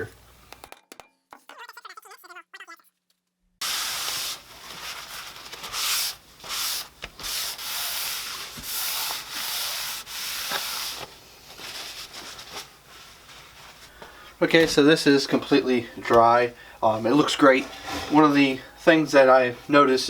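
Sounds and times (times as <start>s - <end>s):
hand rubbing wooden tabletop: 3.6s - 13.9s, 17.2s - 18.7s.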